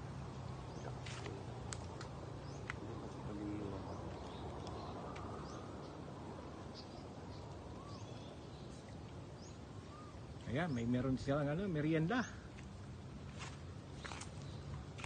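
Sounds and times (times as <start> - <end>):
low hiss: 0.0 - 15.0
faint bird chirps: 2.4 - 11.2.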